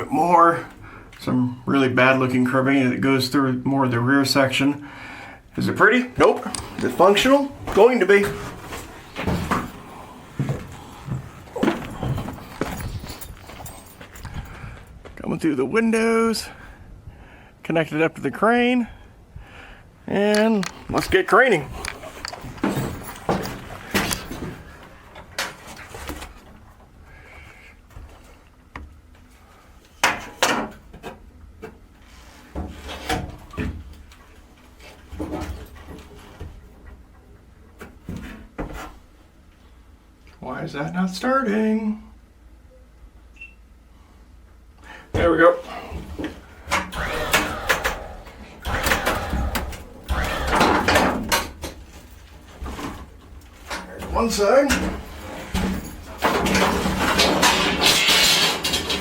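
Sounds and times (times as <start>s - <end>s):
roof creaking and scraping: 5.6s - 14.8s, 45.9s - 59.0s
knocks and bumps: 6.2s - 15.2s, 46.0s - 59.0s
bending squeaks: 6.6s - 14.3s.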